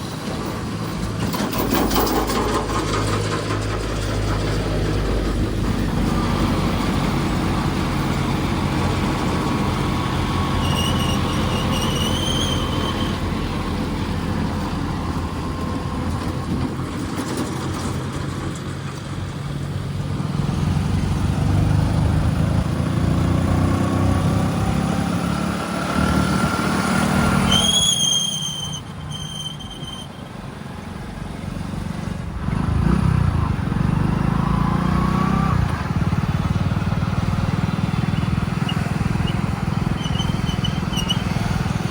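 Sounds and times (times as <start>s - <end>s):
heavy diesel machinery running: 0.0s - 41.9s
short high squeals: 10.1s - 13.7s, 27.2s - 30.4s, 38.1s - 41.9s.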